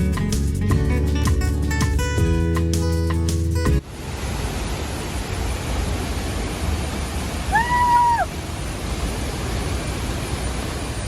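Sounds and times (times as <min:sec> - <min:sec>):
strummed guitar music: 0:00.0 - 0:03.8
steady rushing noise: 0:03.8 - 0:11.0.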